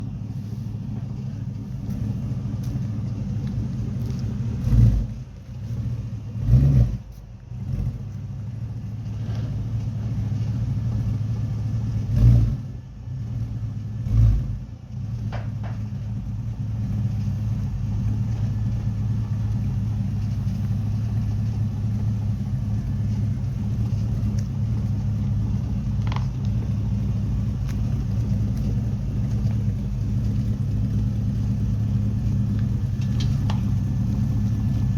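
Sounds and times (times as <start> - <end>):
car engine idling and revving: 0.0 - 34.9.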